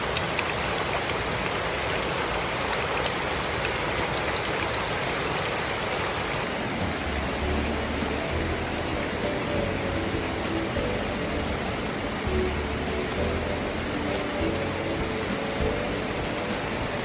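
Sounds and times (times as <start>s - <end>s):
steady rain falling: 0.0s - 17.0s
faint music: 6.4s - 17.0s.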